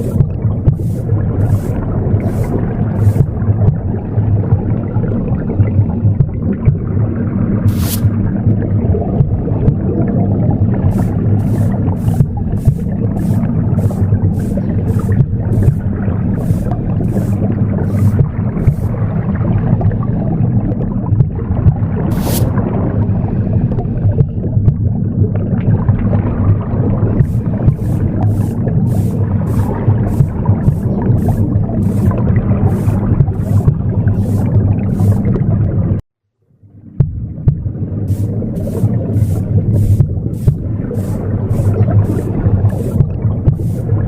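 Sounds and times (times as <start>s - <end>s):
broom sweeping: 0.0s - 3.4s, 7.7s - 8.2s, 10.9s - 19.0s, 22.1s - 22.6s, 27.2s - 35.4s, 38.1s - 44.0s
low whooshing womb sound: 0.0s - 36.0s, 36.9s - 44.0s.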